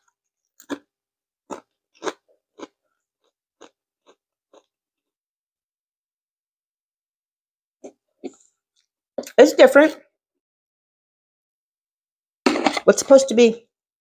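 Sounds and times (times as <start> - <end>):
person crunching crisps: 0.5 - 4.7.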